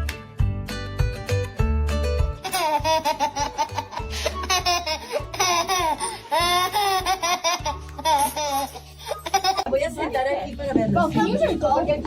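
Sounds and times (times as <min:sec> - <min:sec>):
background music: 0:00.0 - 0:12.0
baby laughing: 0:02.4 - 0:09.7.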